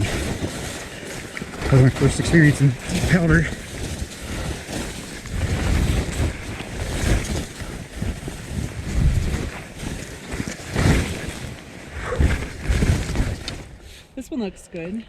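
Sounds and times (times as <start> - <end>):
wind rushing over microphone: 0.0 - 14.2.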